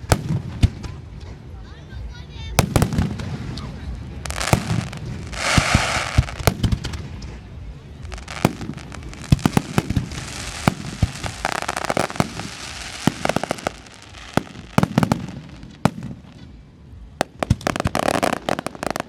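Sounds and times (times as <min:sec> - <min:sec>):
fireworks bangs: 0:00.0 - 0:01.4, 0:02.5 - 0:19.0
fireworks crackling bursts: 0:00.0 - 0:19.0.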